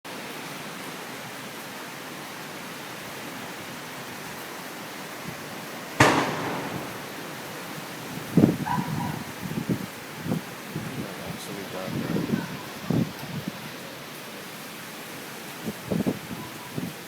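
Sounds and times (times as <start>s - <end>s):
heavy rain: 0.1s - 17.0s
hurricane wind: 0.7s - 17.0s
loud sharp bang: 6.0s - 7.7s.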